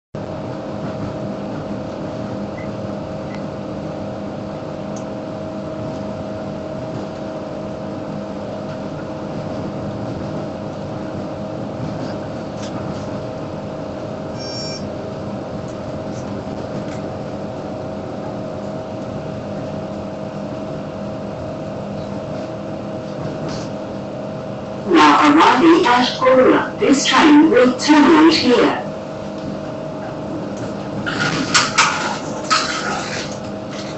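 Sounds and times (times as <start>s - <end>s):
train interior drone: 0.2s - 33.9s
rolling rail noise: 8.6s - 27.1s, 29.2s - 33.9s
brief high-pitched tone: 14.4s - 14.9s.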